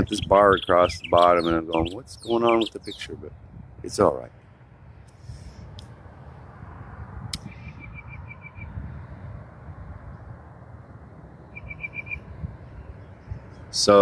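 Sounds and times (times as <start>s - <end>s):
bird singing: 0.0s - 3.5s, 7.4s - 8.8s, 11.4s - 14.0s
steady low rumble: 0.0s - 14.0s.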